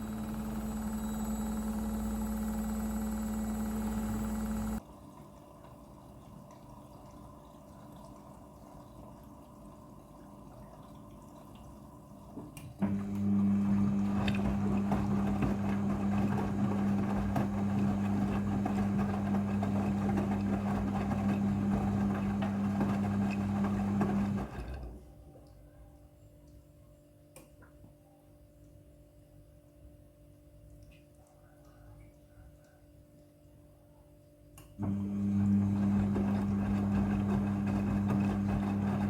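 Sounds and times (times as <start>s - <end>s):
water rushing in washing machine: 0.0s - 25.1s, 34.8s - 39.0s
washing machine electric hum: 0.0s - 39.0s
water trickling: 4.8s - 12.8s.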